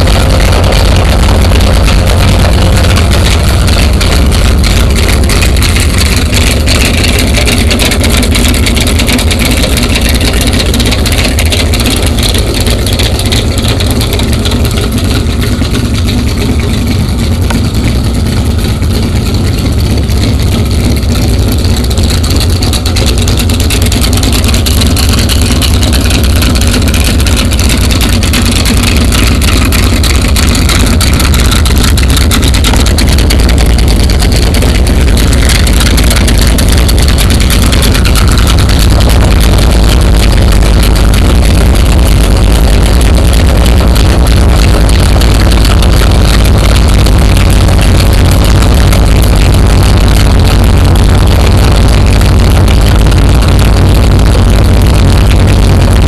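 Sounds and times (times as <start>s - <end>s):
vee eight engine rumbling: 0.0s - 56.0s.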